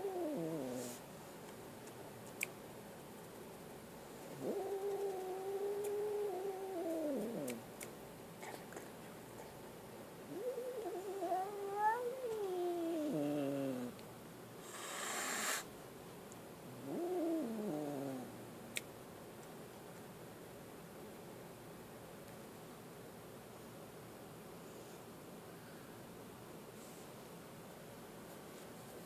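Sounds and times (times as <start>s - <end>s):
kitten hissing: 14.6s - 15.7s.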